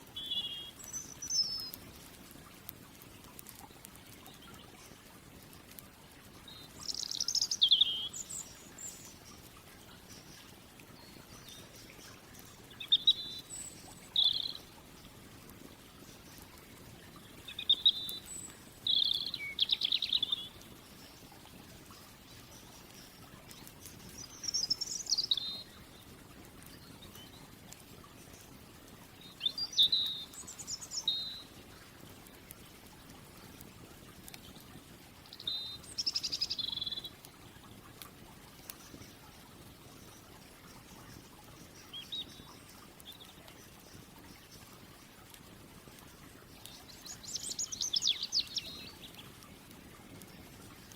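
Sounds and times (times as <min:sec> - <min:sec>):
birds chirping and trilling: 0:12.7 - 0:14.6, 0:17.5 - 0:20.6, 0:46.6 - 0:49.3.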